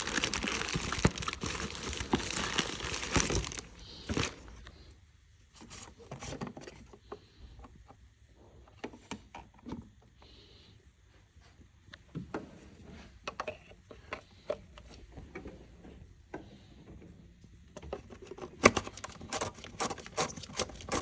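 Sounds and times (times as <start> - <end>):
packaging crinkling and rustling: 0.0 - 4.7.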